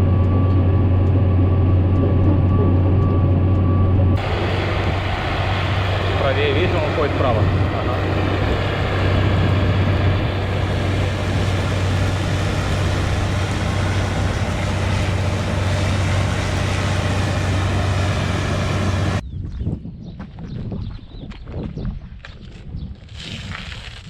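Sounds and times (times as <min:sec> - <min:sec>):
tractor engine running: 0:00.0 - 0:19.2.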